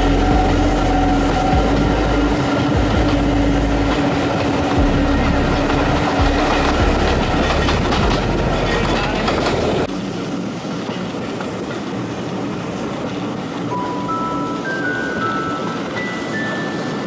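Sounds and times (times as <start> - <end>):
bell-like background music: 0.0 - 9.3, 13.7 - 17.0
train carriages rumbling and rattling: 0.0 - 17.0
wheels clickety-clack: 0.1 - 13.8.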